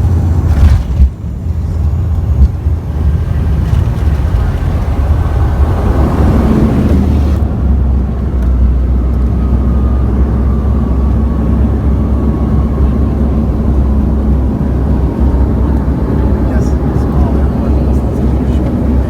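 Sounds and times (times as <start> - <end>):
airliner engine drone: 0.0 - 19.0.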